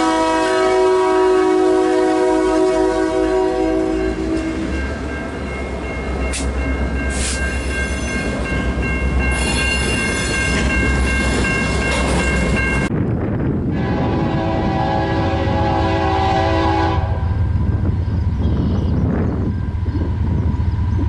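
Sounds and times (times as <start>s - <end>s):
train horn: 0.0s - 4.8s, 13.7s - 17.5s
passing train rumble: 0.0s - 21.0s.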